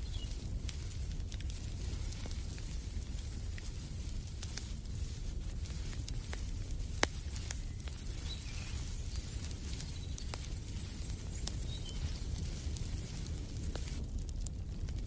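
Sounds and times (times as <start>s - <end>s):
wood fire crackling: 0.0s - 15.0s
faint bird chirps: 7.6s - 12.2s.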